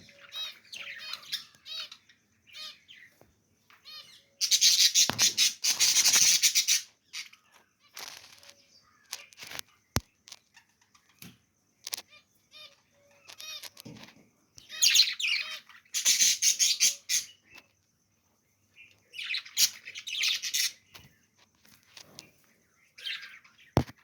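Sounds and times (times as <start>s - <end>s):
budgerigars chirping and chattering: 0.0s - 11.3s, 11.9s - 17.7s, 18.7s - 23.8s.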